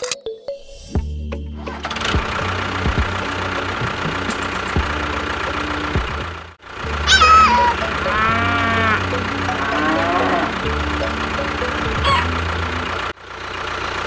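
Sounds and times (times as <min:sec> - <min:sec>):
tractor engine idling: 0:01.3 - 0:14.0
high animal call: 0:07.0 - 0:10.7, 0:12.0 - 0:12.4.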